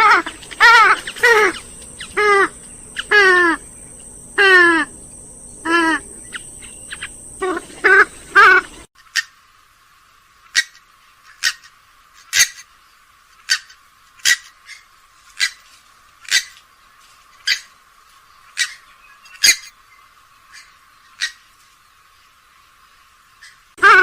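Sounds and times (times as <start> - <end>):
bird giving sharp call notes: 5.6 - 8.9.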